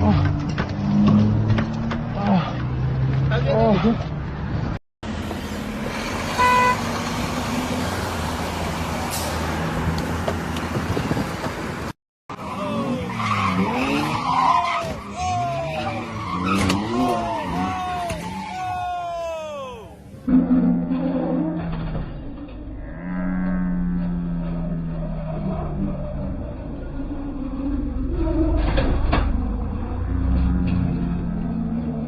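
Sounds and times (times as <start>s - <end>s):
car traffic and road noise: 0.0s - 32.0s
tyres squealing: 12.4s - 20.0s.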